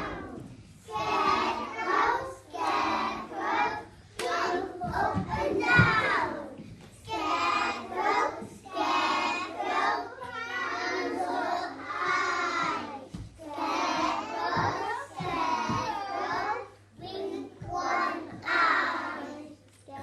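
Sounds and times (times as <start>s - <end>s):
children singing together: 0.0s - 19.6s.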